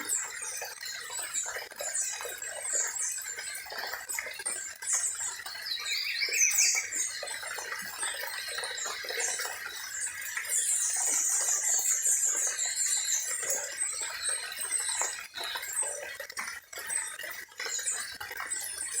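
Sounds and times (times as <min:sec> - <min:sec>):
birds chirping and singing: 0:04.9 - 0:15.1.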